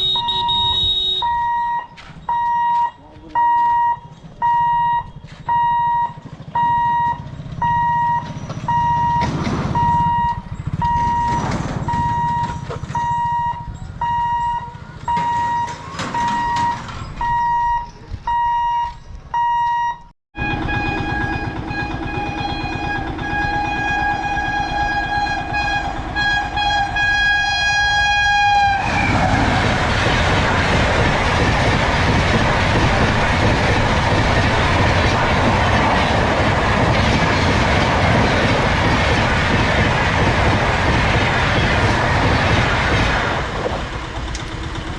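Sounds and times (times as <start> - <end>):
locomotive horn blast: 0.0 - 1.7, 20.4 - 29.5
level crossing warning beeps: 0.0 - 20.1
train passing at high speed: 20.4 - 44.9.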